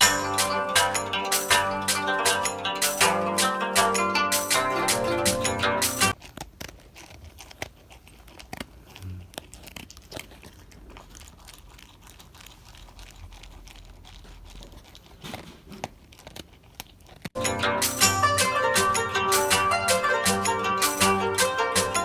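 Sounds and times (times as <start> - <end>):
guitar music: 0.0 - 6.2, 17.4 - 22.0
dog crunching food: 6.1 - 17.4.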